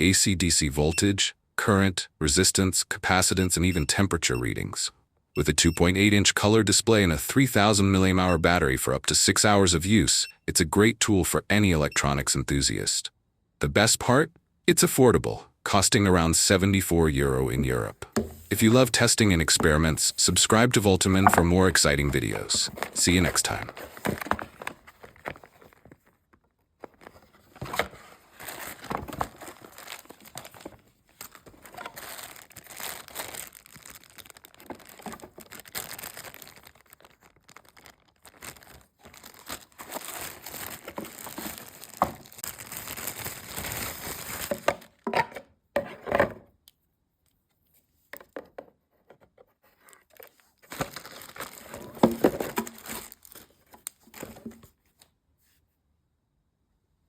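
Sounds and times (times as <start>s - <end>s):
material crinkling and tearing: 21.2s - 44.7s, 50.0s - 54.5s.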